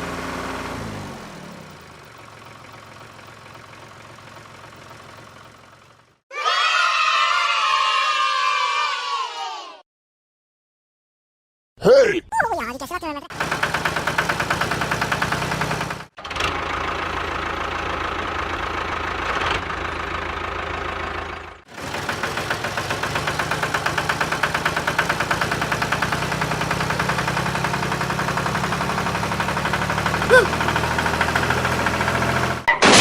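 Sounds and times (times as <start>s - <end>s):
small engine running: 13.3s - 32.7s.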